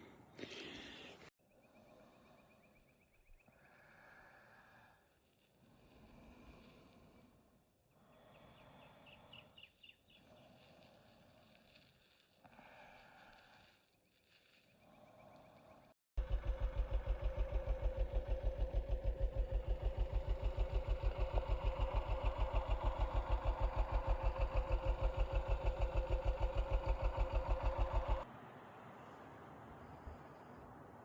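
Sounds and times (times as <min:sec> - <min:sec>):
motorcycle engine idling: 0:16.2 - 0:28.3.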